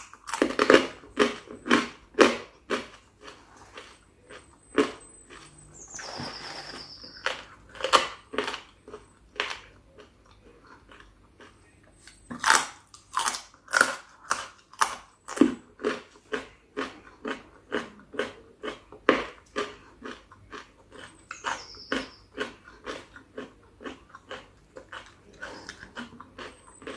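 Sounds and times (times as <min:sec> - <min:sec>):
close chewing and crunching: 0:00.0 - 0:26.9
high squeak: 0:05.0 - 0:07.5.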